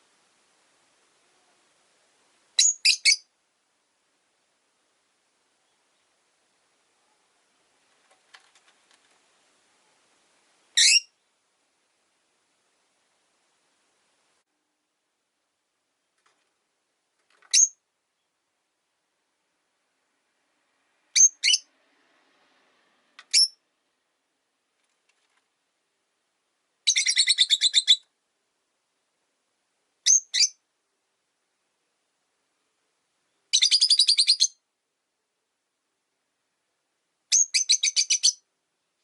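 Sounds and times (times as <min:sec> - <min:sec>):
lovebirds chirping: 0:02.5 - 0:03.3, 0:05.5 - 0:06.2, 0:10.7 - 0:11.4, 0:17.4 - 0:18.4, 0:21.1 - 0:21.7, 0:23.2 - 0:23.6, 0:26.8 - 0:28.1, 0:30.0 - 0:30.6, 0:33.3 - 0:34.6, 0:37.3 - 0:38.5.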